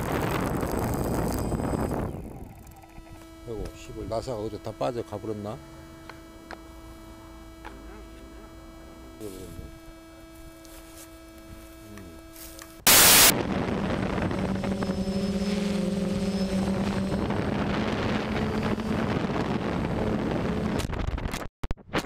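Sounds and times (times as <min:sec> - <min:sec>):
loud crackle: 0:00.0 - 0:02.8, 0:12.8 - 0:15.3
drone propellers humming: 0:00.0 - 0:20.9.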